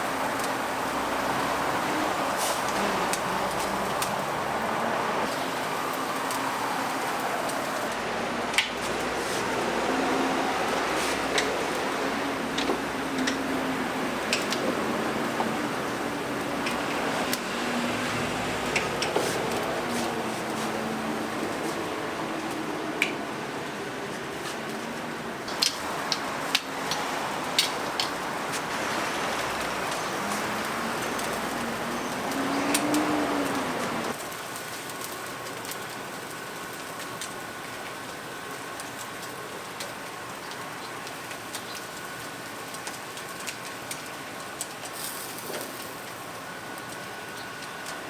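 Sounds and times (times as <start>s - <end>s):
chickens sizzling: 0.0s - 48.0s
wood fire crackling: 0.0s - 48.0s.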